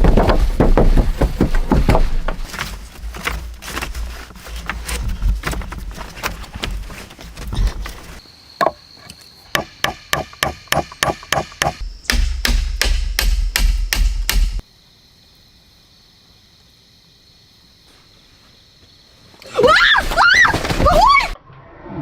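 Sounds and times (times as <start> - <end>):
tool striking wood: 0.0 - 2.6, 9.5 - 14.6.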